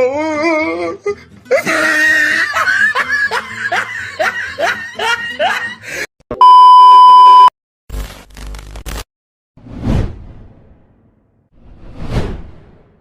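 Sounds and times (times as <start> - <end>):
high-pitched censor bleep: 6.4 - 7.5.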